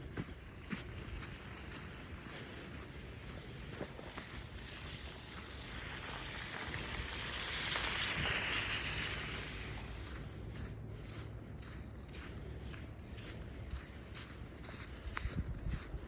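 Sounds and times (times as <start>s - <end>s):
outdoor background noise: 0.0s - 16.0s
tyre hiss on slushy street: 0.6s - 11.3s.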